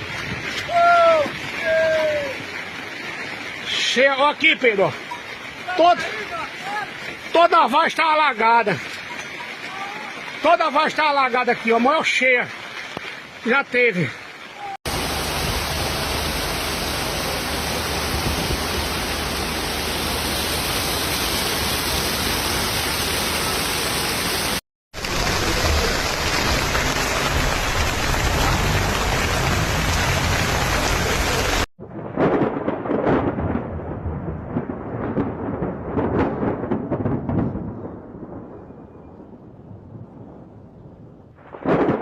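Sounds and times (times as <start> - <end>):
heavy rain rushing: 0.0 - 37.2
dull rush in gusts: 14.9 - 24.6.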